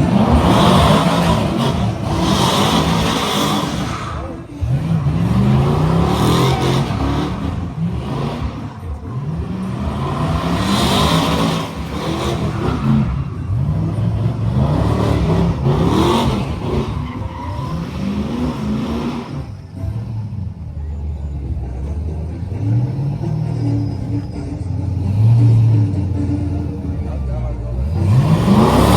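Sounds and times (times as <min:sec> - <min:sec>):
tires spinning hiss: 0:00.0 - 0:20.2
truck engine revving: 0:00.0 - 0:28.9.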